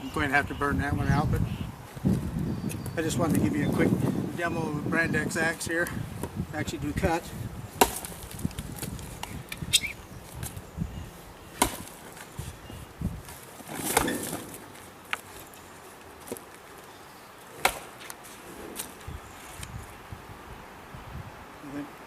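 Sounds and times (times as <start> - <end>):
axe chopping wood: 7.8 - 9.3, 11.6 - 12.2, 13.6 - 14.6, 17.6 - 18.1.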